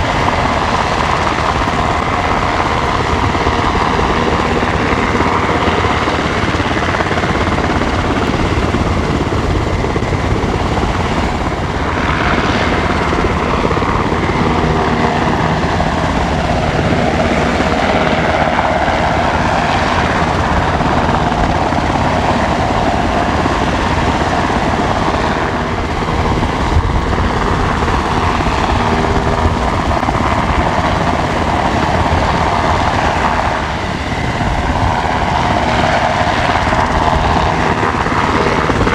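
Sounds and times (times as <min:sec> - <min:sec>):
helicopter engines and rotor: 0:00.0 - 0:38.9.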